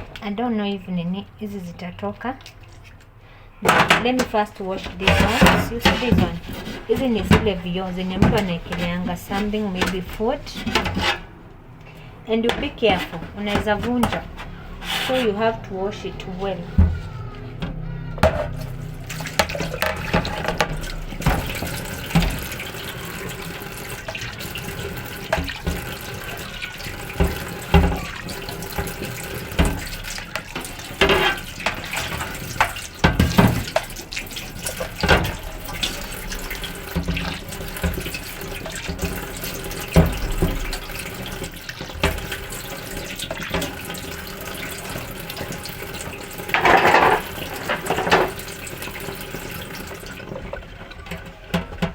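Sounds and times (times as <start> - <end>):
tap water running into sink: 1.4 - 51.9
glass shelf knocking and clattering: 17.6 - 18.6, 46.5 - 48.5.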